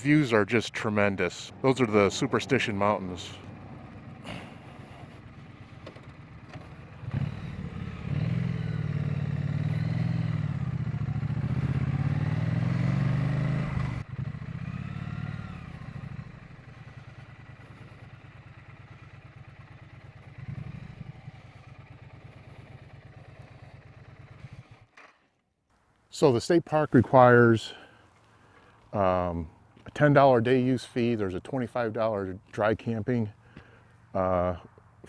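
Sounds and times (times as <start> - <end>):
motorcycle engine: 0.6 - 25.4.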